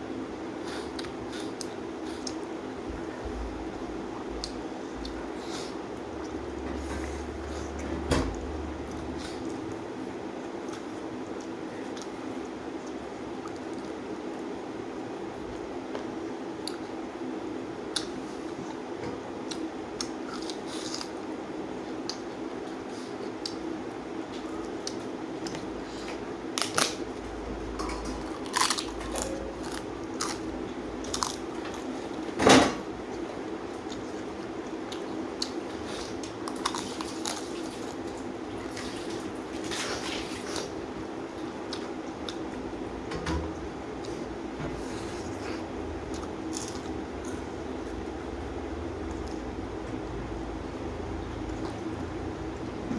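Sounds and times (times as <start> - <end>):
steady low hum: 0.0 - 52.9
person chewing: 0.6 - 3.1, 10.4 - 14.5, 19.4 - 21.2, 28.0 - 32.2, 33.8 - 40.7, 41.4 - 42.8, 44.0 - 48.0.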